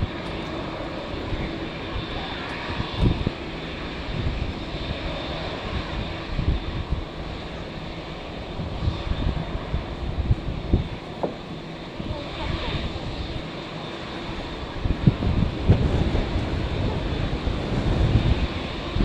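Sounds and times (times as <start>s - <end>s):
jet engines whining: 0.0s - 19.0s
wind buffeting microphone: 0.0s - 19.0s.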